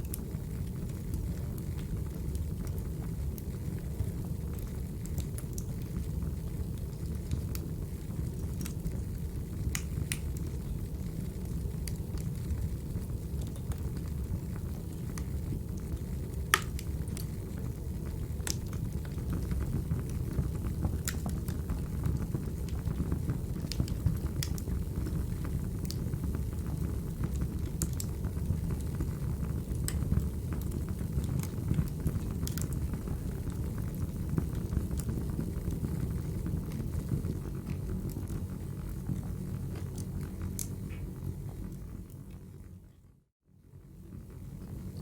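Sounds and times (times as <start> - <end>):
wood fire crackling: 0.0 - 42.9
sharp pops from fire: 9.7 - 10.4, 16.4 - 17.3, 23.6 - 24.7, 39.7 - 41.2.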